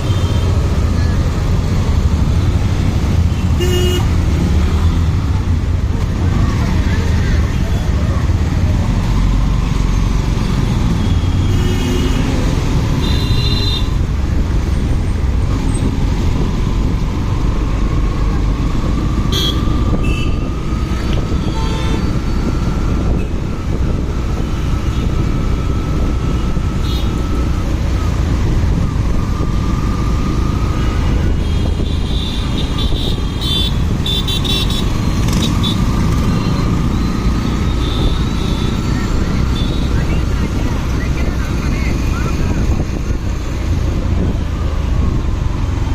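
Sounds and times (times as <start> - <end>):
wind rumble on microphone: 14.0 - 33.2, 37.9 - 45.9.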